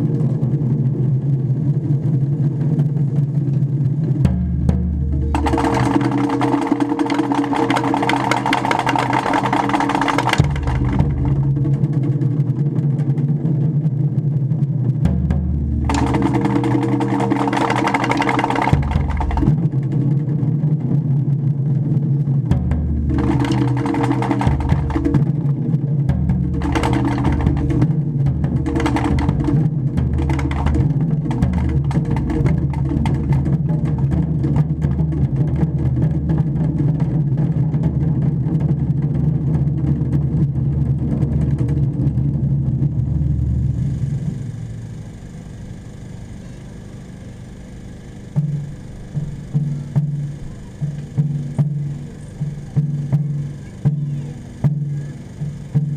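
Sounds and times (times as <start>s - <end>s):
steady low hum: 0.0s - 55.9s
taiko drums playing fast rhythm: 0.0s - 55.9s.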